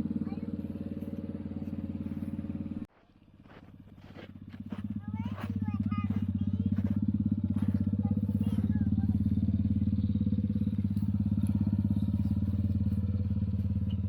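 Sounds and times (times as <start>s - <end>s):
small engine puttering: 0.0s - 14.0s.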